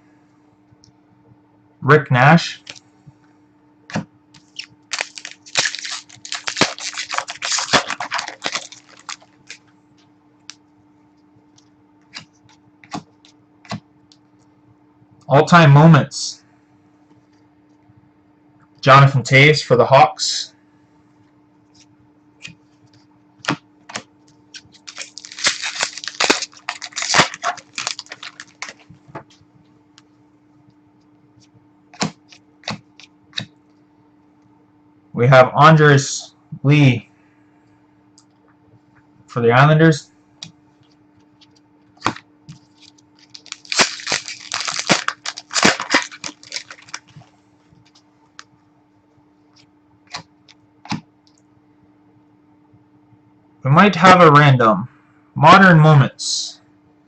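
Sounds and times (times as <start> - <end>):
faint steady hum: 0.0 - 57.0
trading cards rustling and snapping: 3.9 - 9.7, 12.1 - 13.8, 23.4 - 29.4, 32.0 - 33.5, 40.8 - 48.0
plastic wrappers crinkling: 4.4 - 9.7, 24.2 - 29.4, 40.8 - 48.0.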